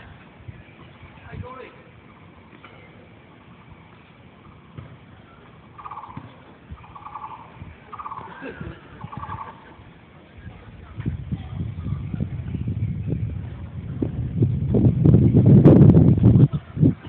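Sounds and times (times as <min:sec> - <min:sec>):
bird rattling calls: 0:05.8 - 0:06.2, 0:06.8 - 0:08.4, 0:09.0 - 0:09.6.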